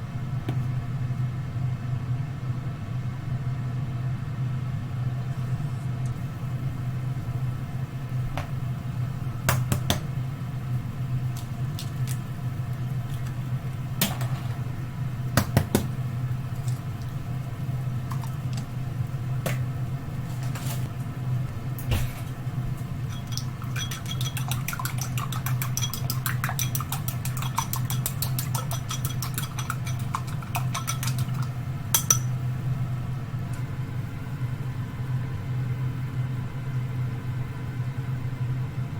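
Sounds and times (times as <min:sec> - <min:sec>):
steady low hum: 0:00.0 - 0:38.9
utensils clinking on pots: 0:23.0 - 0:32.4.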